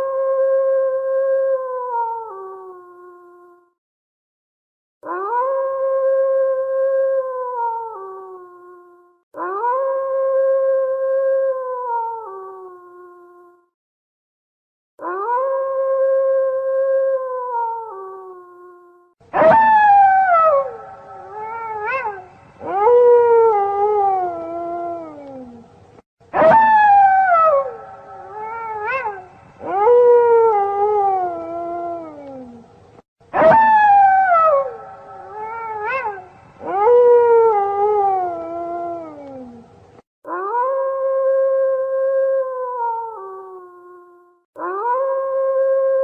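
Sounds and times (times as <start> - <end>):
wolf yip: 19.3 - 25.2, 26.3 - 32.3, 33.3 - 39.3, 40.3 - 43.2, 44.6 - 46.0
wolves howling: 19.4 - 25.6, 26.4 - 32.6, 33.4 - 39.6.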